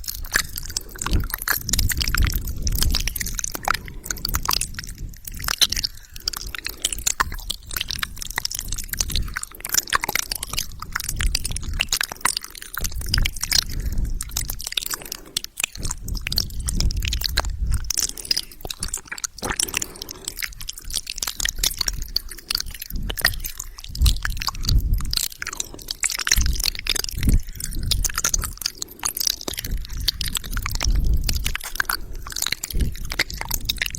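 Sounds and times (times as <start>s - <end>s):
lip smacks: 0.0s - 33.9s
saliva pops: 0.0s - 33.9s
tongue clicks: 0.0s - 33.9s
soft low thumps: 22.9s - 25.2s, 29.5s - 33.9s.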